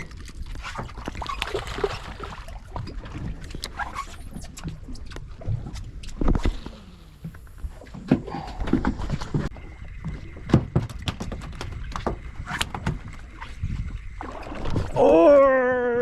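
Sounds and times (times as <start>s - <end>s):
boat engine low rumble: 0.0s - 16.0s
water noise: 0.0s - 16.0s
wind: 0.0s - 16.0s.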